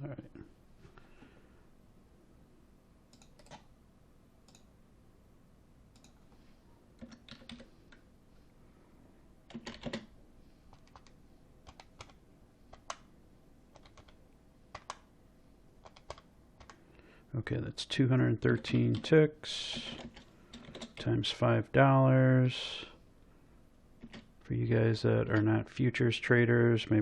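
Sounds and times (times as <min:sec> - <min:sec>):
keyboard keystrokes and clicks: 0:03.1 - 0:03.7, 0:05.9 - 0:06.2, 0:07.0 - 0:08.0, 0:09.5 - 0:10.1, 0:10.7 - 0:13.1, 0:13.7 - 0:15.1, 0:15.8 - 0:16.8, 0:19.7 - 0:21.1, 0:24.0 - 0:24.3.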